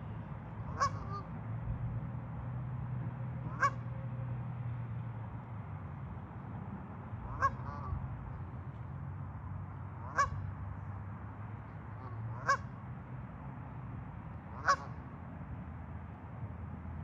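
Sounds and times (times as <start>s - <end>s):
bird honking calls: 0.7s - 1.3s, 3.5s - 3.8s, 7.3s - 8.0s, 10.0s - 10.4s, 12.0s - 12.7s, 14.6s - 15.0s.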